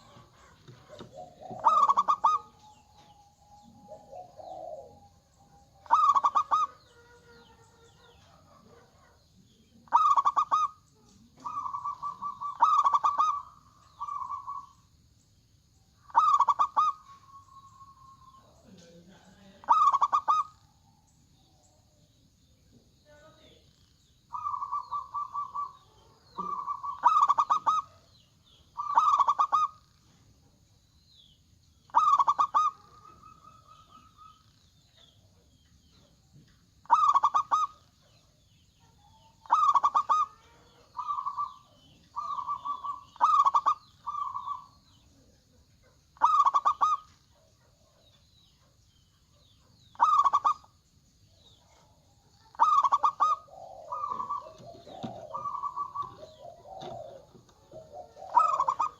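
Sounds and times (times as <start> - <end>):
doves cooing: 0.0 - 15.0, 15.8 - 22.0, 22.8 - 30.4, 31.9 - 48.8, 49.4 - 50.8, 51.4 - 58.9.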